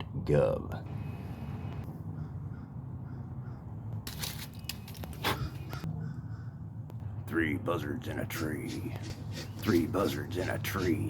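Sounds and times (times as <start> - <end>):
low background rumble: 0.0 - 11.0
crows cawing: 1.9 - 4.2, 5.0 - 6.9.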